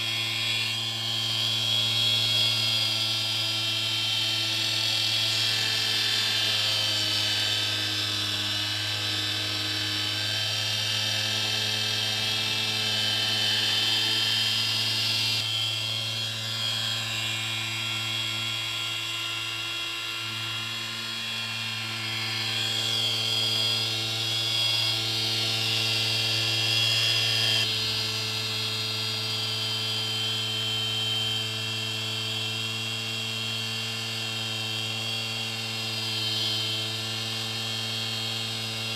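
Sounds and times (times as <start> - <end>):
stepper motor humming and whining: 0.0 - 38.9.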